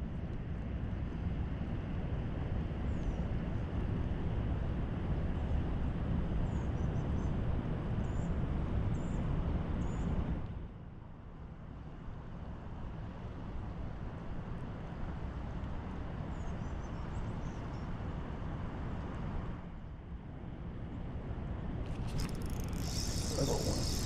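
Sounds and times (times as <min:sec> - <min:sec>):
spillway water roaring: 0:21.9 - 0:24.0.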